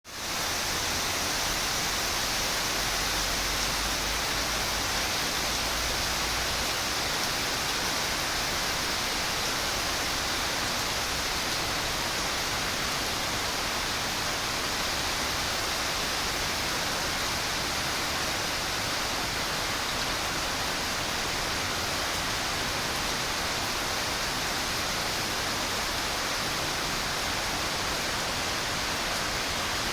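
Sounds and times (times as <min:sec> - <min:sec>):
steady rain falling: 0:00.1 - 0:29.9.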